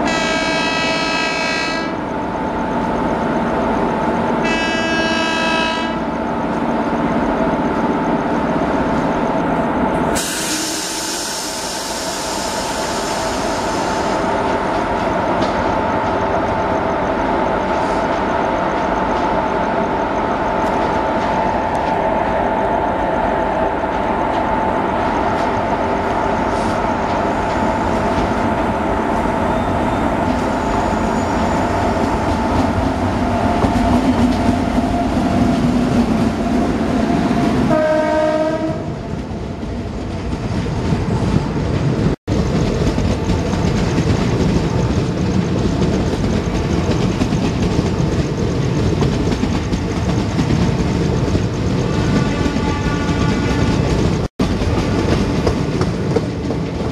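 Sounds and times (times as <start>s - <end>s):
train horn blast: 0.0s - 2.0s, 4.4s - 6.1s, 37.7s - 39.0s, 52.0s - 53.8s
locomotive approaching: 0.0s - 56.9s
train wheels clacking over rail joints: 39.9s - 56.9s.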